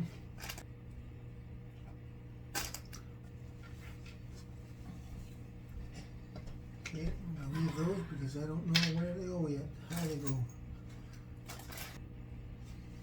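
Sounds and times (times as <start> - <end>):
steady low hum: 0.0 - 13.0
small parts clicking and clattering: 0.4 - 0.6, 2.5 - 3.0, 11.4 - 12.0.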